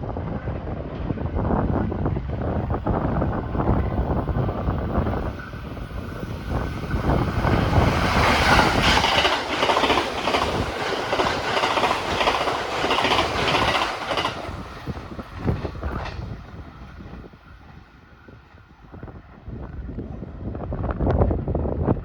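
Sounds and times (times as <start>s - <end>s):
train wheels clacking: 4.9s - 16.5s.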